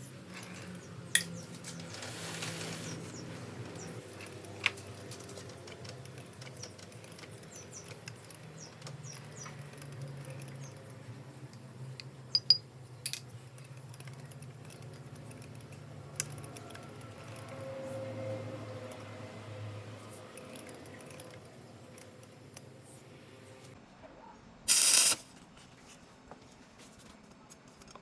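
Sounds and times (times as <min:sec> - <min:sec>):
metal tools clinking: 0:12.3 - 0:13.4.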